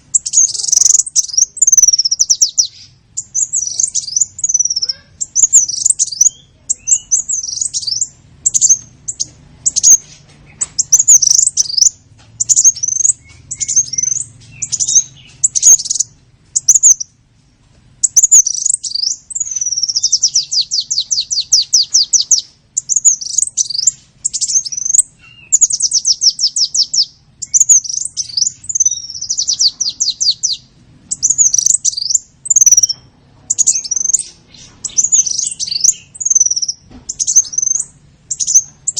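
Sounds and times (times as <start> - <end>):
high-pitched bird lure chirps: 0.1 - 17.1, 18.0 - 38.9.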